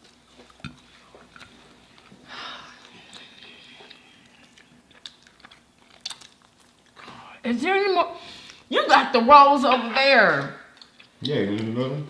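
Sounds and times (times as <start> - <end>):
chewing with small clicks: 0.0 - 7.2, 10.7 - 11.8.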